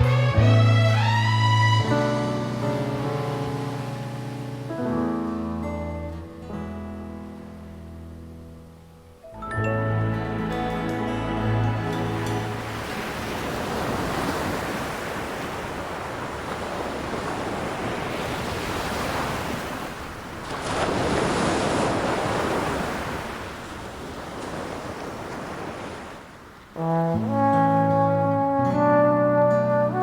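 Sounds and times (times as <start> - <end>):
ocean waves washing in: 0.9 - 5.6, 10.4 - 27.8.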